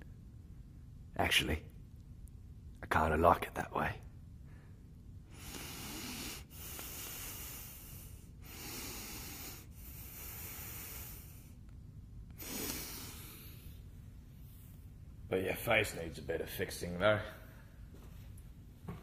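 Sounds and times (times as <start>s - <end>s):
person breathing heavily: 4.4s - 11.6s, 12.3s - 14.6s.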